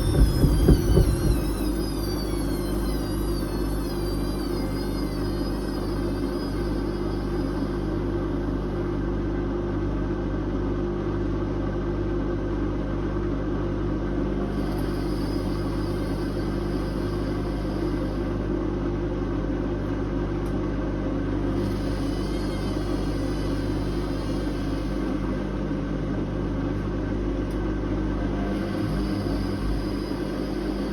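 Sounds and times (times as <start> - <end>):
washing machine motor hum: 0.0 - 30.9
washing machine hiss: 21.5 - 25.3, 28.4 - 30.9.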